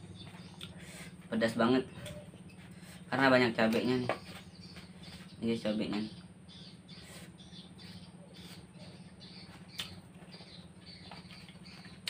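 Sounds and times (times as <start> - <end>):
steady low hum: 0.0 - 12.0
wet chewing sounds: 0.2 - 0.8, 9.5 - 12.0.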